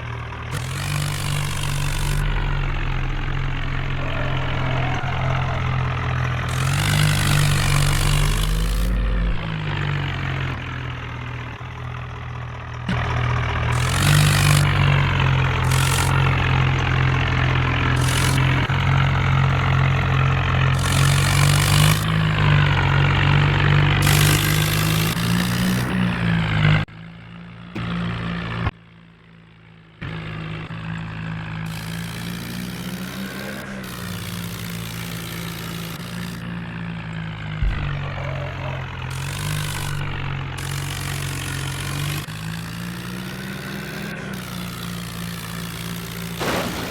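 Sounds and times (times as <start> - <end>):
tractor diesel engine revving: 0.0 - 46.9.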